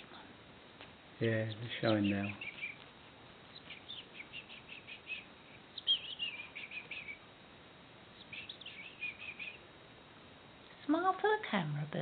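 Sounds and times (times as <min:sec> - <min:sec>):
young songbird chirping: 0:01.2 - 0:07.3, 0:08.1 - 0:09.7.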